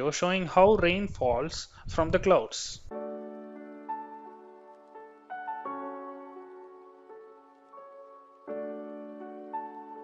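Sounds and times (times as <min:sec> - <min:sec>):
soft piano music: 0:02.9 - 0:10.0.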